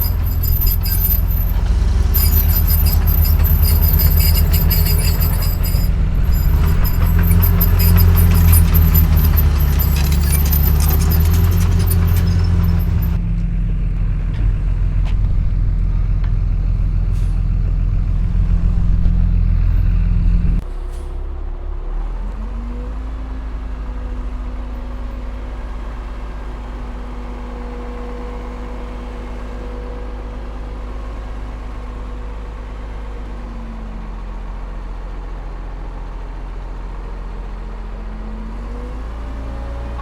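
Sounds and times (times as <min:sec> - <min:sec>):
high squeal: 0:00.0 - 0:13.2
bulldozer diesel engine drone: 0:00.0 - 0:40.0.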